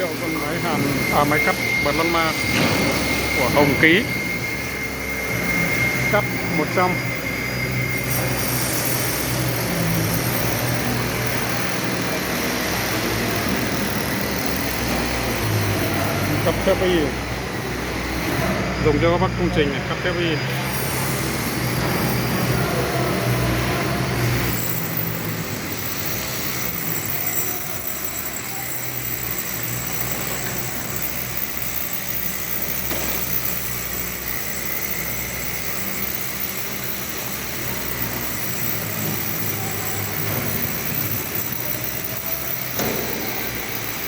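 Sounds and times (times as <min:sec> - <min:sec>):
plasma cutter hissing: 0:00.0 - 0:17.3.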